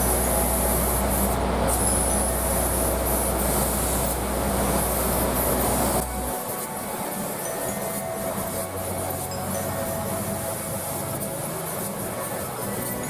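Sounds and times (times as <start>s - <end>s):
machine low hum: 0.0s - 7.4s
hiss: 0.0s - 13.0s.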